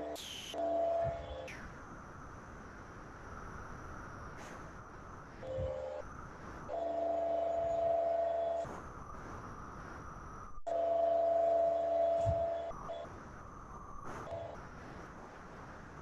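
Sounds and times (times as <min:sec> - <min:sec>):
induction forge electronic whine: 0:00.0 - 0:02.2, 0:03.3 - 0:14.6.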